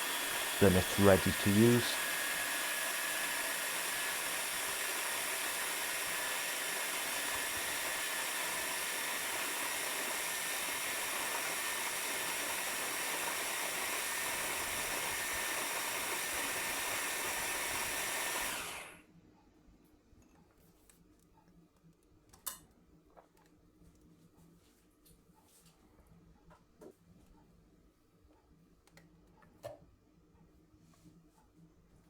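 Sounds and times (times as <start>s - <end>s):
electric blender whirring: 0.0s - 19.0s.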